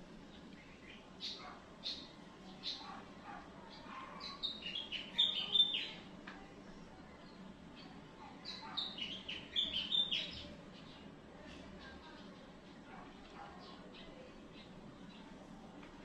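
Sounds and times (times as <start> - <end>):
bird singing quick chirps: 4.2 - 6.0.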